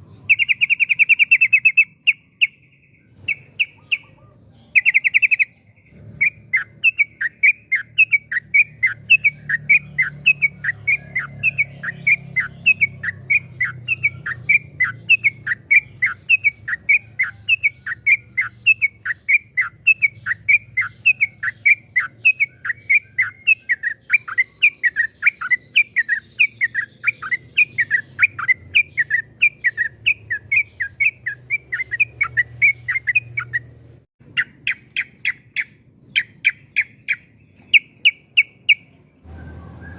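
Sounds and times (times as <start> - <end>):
bulbul whistled song: 0.0 - 39.9.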